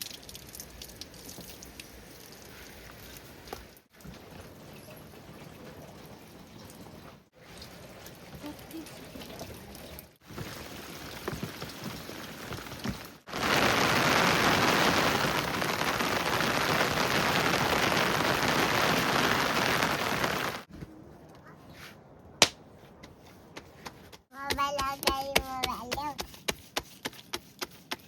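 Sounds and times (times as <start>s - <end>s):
heavy rain falling: 10.3s - 20.7s.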